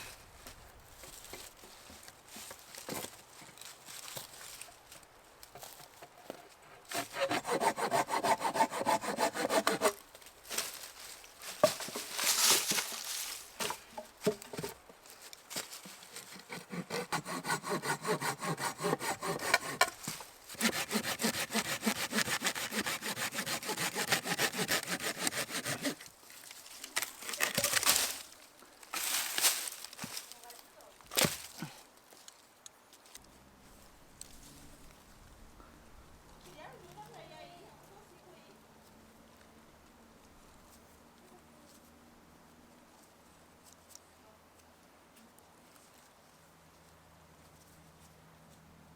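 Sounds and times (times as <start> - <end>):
hand saw cutting wood: 6.9 - 10.0, 15.6 - 26.1.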